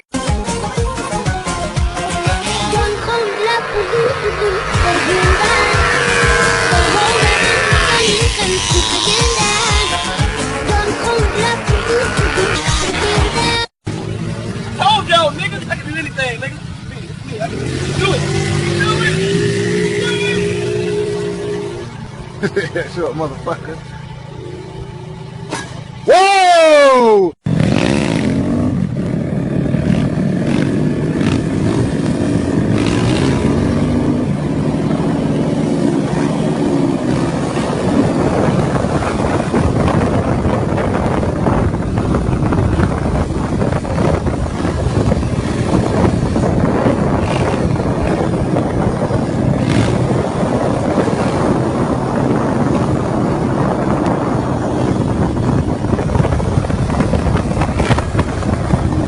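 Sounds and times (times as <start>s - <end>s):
engine running: 1.5s - 26.1s
continuous rushing noise: 25.4s - 59.0s.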